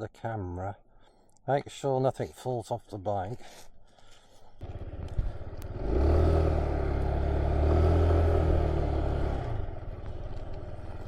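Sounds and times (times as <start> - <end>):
motorcycle engine running: 4.6 - 11.0.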